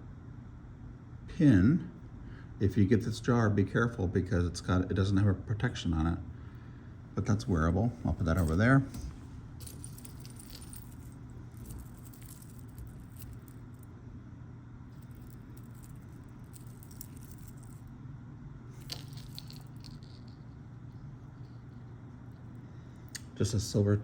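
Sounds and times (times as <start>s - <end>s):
steady low hum: 0.0s - 24.0s
jewelry clinking and rattling: 8.2s - 13.9s, 14.9s - 17.9s, 18.7s - 20.6s.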